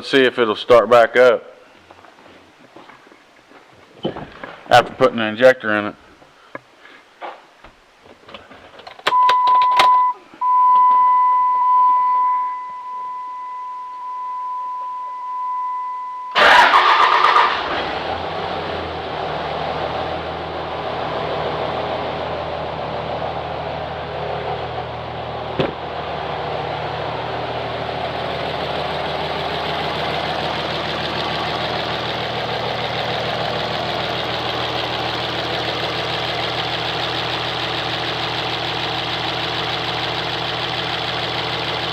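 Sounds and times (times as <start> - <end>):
diesel engine cranking and idling: 16.4 - 41.9.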